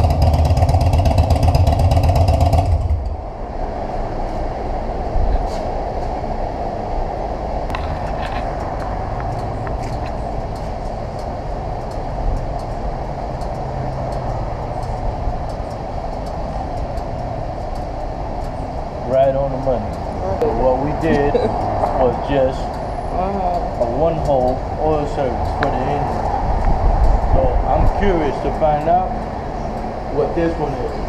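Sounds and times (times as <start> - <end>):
motorcycle engine idling: 0.0 - 3.2.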